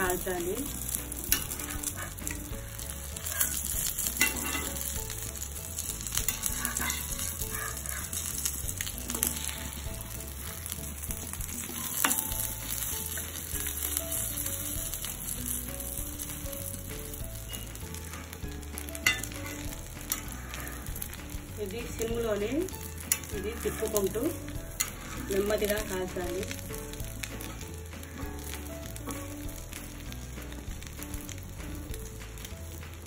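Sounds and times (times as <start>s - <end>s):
oil sizzling under omelette: 0.0s - 33.0s
spatula scraping a pan: 0.1s - 15.6s, 19.0s - 21.4s, 22.7s - 29.4s.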